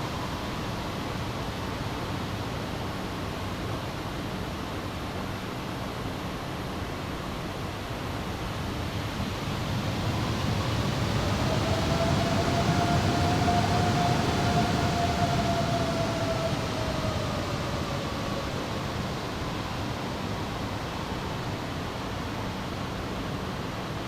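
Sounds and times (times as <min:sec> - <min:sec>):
steady jet whine: 0:06.6 - 0:24.0
jet engines rushing past: 0:08.1 - 0:22.2.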